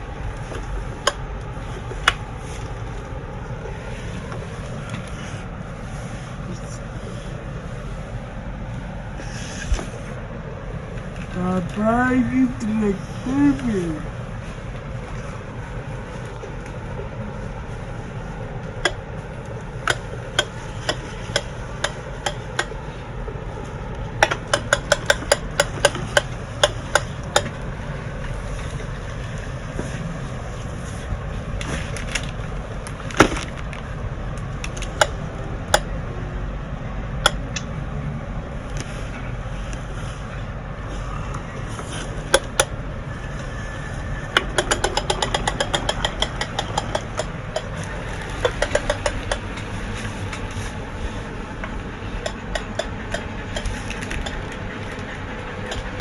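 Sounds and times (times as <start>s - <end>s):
steady low rumble: 0.0s - 56.0s
toy tractor clicking: 24.0s - 27.6s, 44.3s - 50.5s, 51.6s - 56.0s.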